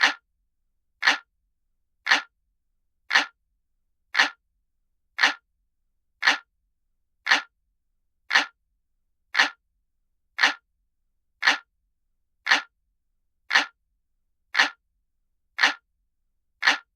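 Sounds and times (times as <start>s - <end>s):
clock ticking: 0.0s - 0.2s, 1.0s - 1.3s, 2.1s - 2.3s, 3.1s - 3.4s, 4.2s - 4.4s, 5.2s - 5.4s, 6.2s - 6.5s, 7.3s - 7.5s, 8.3s - 8.6s, 9.4s - 9.6s, 10.4s - 10.6s, 11.4s - 11.7s, 12.5s - 12.7s, 13.5s - 13.8s, 14.6s - 14.8s, 15.6s - 15.8s, 16.6s - 16.9s.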